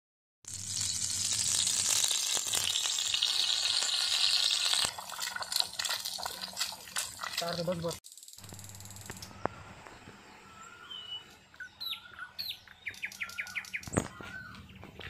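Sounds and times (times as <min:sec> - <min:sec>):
songbirds chirping: 0:09.0 - 0:15.0.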